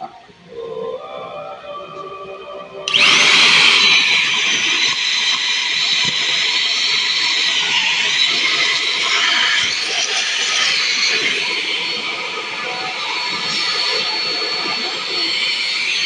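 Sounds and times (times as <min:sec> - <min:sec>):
vacuum cleaner motor whine: 0:02.8 - 0:16.0.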